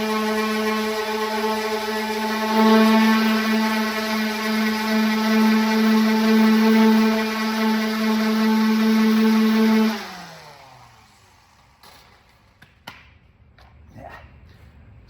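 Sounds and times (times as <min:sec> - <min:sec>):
orbital sander running: 0:00.0 - 0:11.9.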